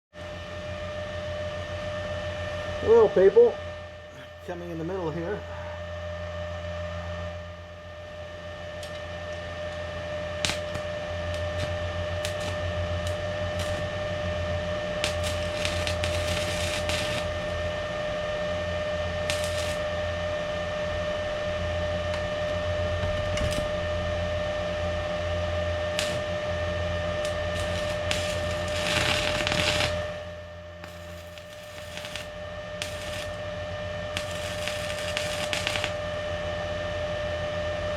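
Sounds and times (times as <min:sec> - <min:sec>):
welder humming: 0:00.1 - 0:37.9
welding crackling: 0:08.8 - 0:17.7, 0:19.1 - 0:24.7, 0:25.8 - 0:36.2.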